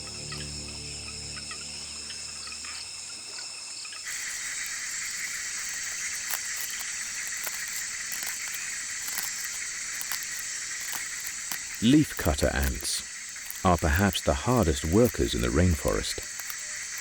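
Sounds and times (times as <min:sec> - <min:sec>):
high rainforest hiss: 0:00.0 - 0:17.0.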